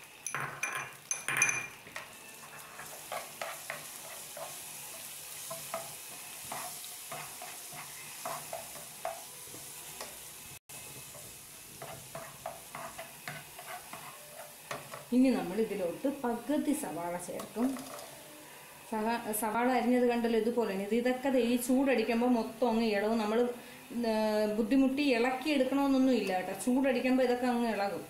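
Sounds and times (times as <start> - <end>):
utensil tapping and scraping pan: 0.4 - 9.3, 11.0 - 15.1
paste sizzling in hot oil: 1.0 - 18.9.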